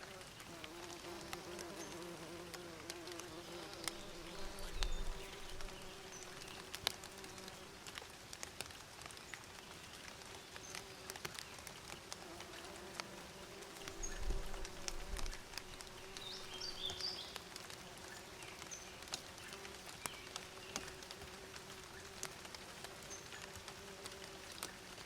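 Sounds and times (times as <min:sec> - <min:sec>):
bees buzzing: 0:00.0 - 0:07.8, 0:12.2 - 0:18.2, 0:19.0 - 0:25.0
faint ticks: 0:00.0 - 0:25.0
bird chirping: 0:03.2 - 0:07.7, 0:13.9 - 0:17.4.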